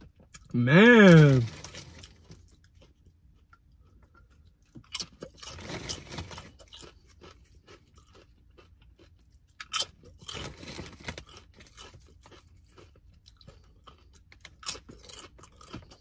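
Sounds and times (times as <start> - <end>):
person chewing crunchy chip: 0.1 - 16.0.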